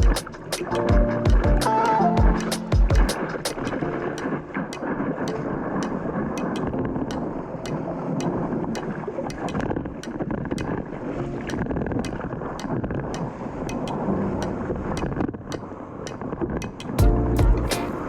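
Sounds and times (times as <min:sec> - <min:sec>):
faint light ticks: 0:03.5 - 0:17.0.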